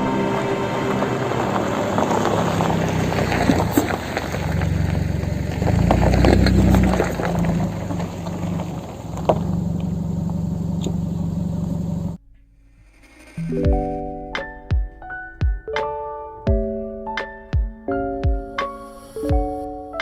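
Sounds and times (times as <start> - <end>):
car engine humming: 0.0 - 15.4.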